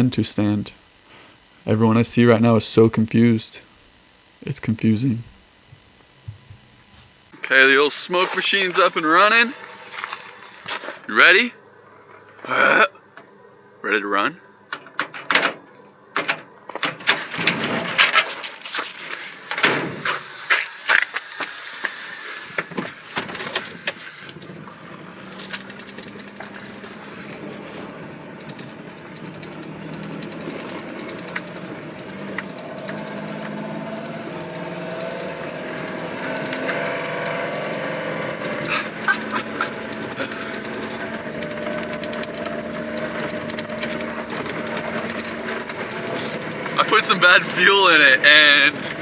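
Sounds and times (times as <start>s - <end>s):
truck engine running: 0.0s - 7.1s.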